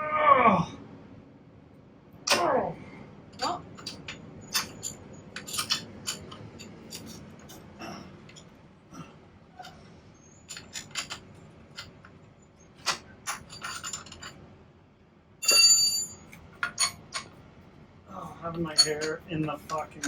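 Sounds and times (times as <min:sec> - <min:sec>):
metal tools clicking and scraping: 0:03.4 - 0:08.6, 0:10.4 - 0:12.1, 0:12.8 - 0:14.4, 0:15.4 - 0:17.4, 0:18.6 - 0:20.0.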